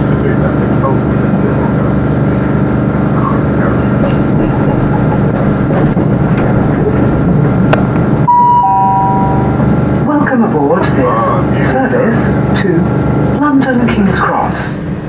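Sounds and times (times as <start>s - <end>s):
train wheels rumbling: 2.2s - 8.3s, 9.0s - 15.0s
two-note falling chime: 8.3s - 9.6s.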